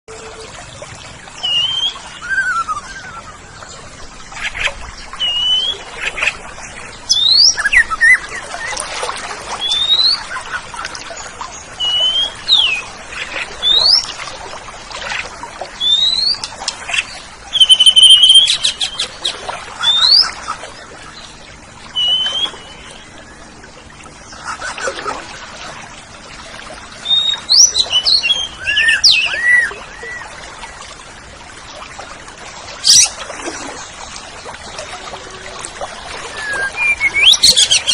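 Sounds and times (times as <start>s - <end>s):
bird singing whistled notes: 1.4s - 3.4s, 17.6s - 18.7s, 36.3s - 37.9s.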